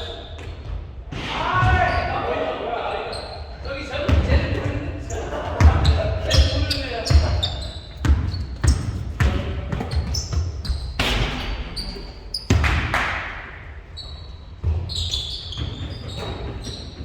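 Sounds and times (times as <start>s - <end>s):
sneaker squeaks: 0.0s - 2.4s, 3.0s - 13.0s, 13.6s - 17.0s
basketball bouncing: 5.6s - 11.7s, 12.4s - 13.2s.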